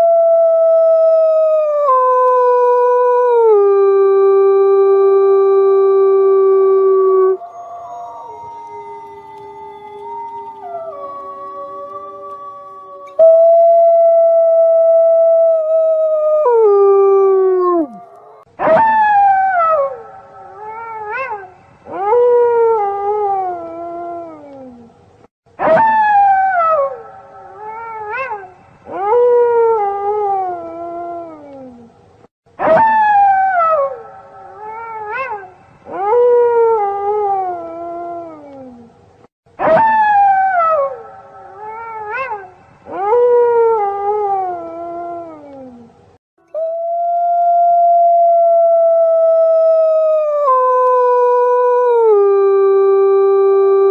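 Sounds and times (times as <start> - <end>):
wolves howling in chorus: 7.1 - 13.6.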